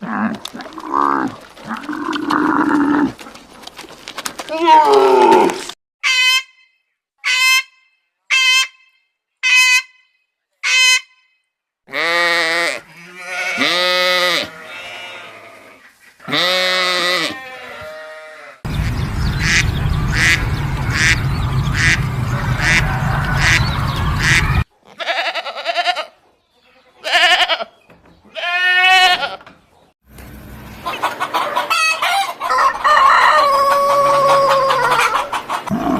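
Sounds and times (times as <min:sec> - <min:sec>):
wavering bleats: 0:11.9 - 0:18.6, 0:35.7 - 0:35.9.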